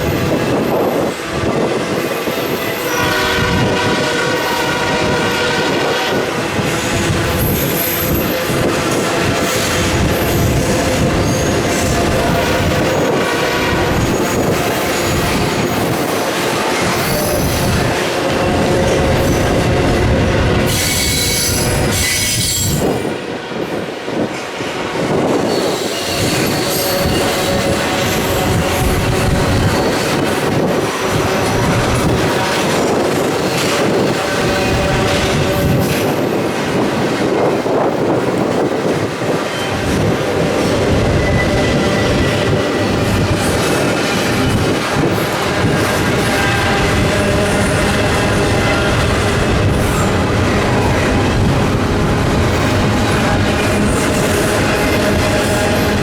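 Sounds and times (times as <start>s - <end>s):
rail rumble: 0.0s - 56.0s
train wheels squealing: 6.6s - 23.2s, 25.1s - 36.4s, 39.3s - 51.5s.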